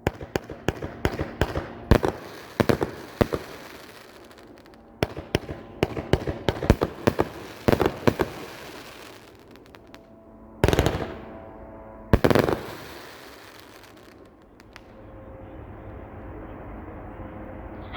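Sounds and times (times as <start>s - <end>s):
firework booms: 0.0s - 10.0s, 10.6s - 11.4s, 12.2s - 14.8s
firework cracking reports: 0.0s - 10.0s, 10.6s - 11.4s, 12.2s - 14.8s.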